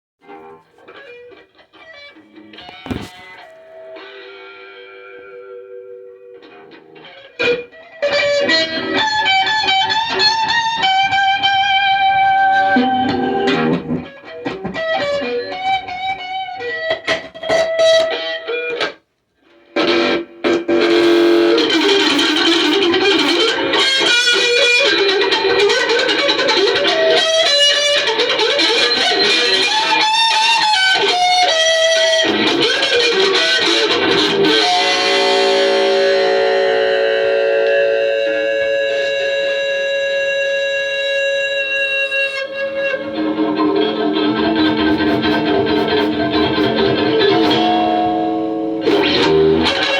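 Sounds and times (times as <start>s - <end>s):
electric guitar playing: 0.2s - 49.9s.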